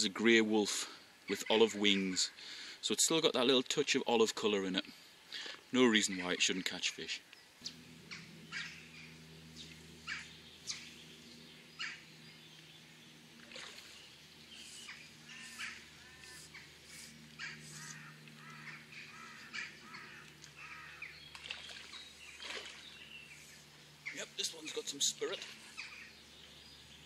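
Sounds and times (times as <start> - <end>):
faint birds chirping: 4.7 - 27.0
bird warbling: 7.6 - 26.9.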